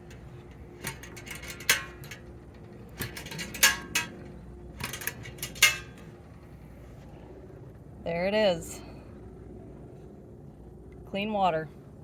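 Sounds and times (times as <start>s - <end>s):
parts clinking and knocking: 0.0s - 6.1s.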